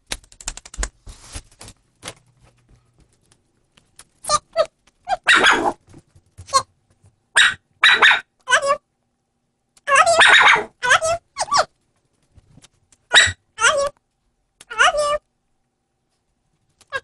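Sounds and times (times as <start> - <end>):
dog barking and whining: 4.3 - 5.8, 7.4 - 8.8, 9.9 - 11.7, 13.1 - 14.0, 14.7 - 15.2.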